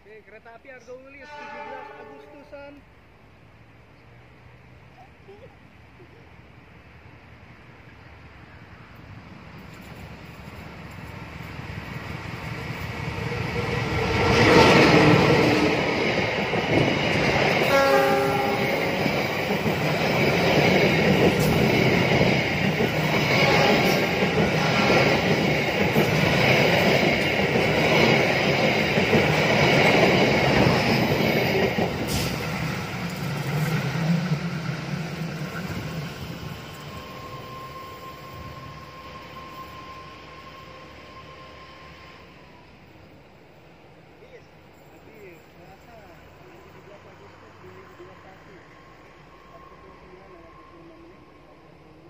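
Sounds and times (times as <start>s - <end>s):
diesel locomotive passing: 0.0s - 52.0s
coach wheels rumbling on track: 6.4s - 52.0s.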